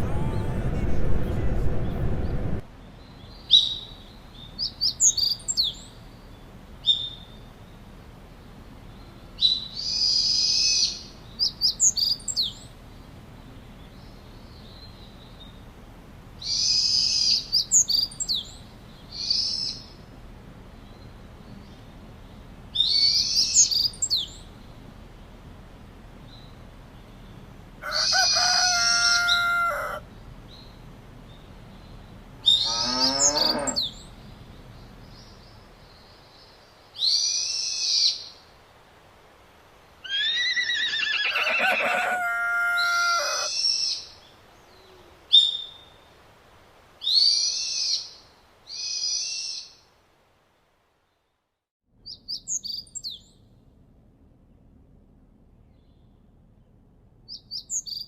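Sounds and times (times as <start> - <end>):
birds calling: 26.2 - 38.4, 39.8 - 46.1.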